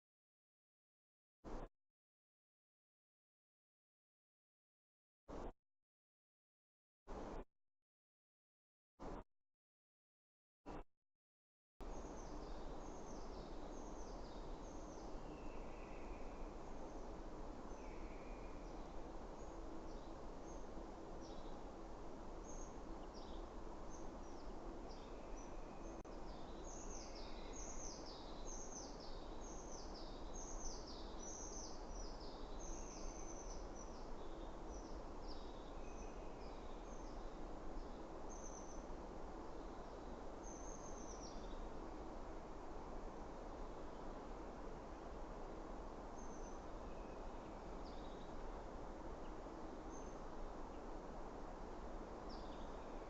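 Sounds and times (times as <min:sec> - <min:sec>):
songbirds singing: 0:11.8 - 0:53.0
steady background hiss: 0:11.8 - 0:53.0.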